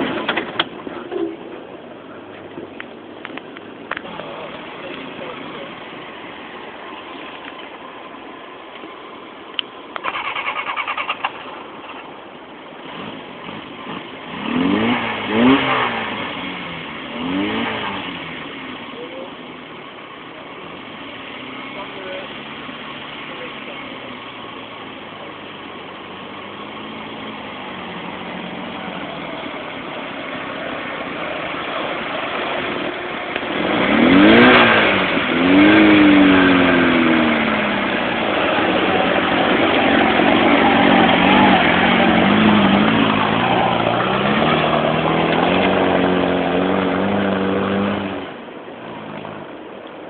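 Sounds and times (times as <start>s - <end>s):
car engine revving: 10.0s - 49.6s.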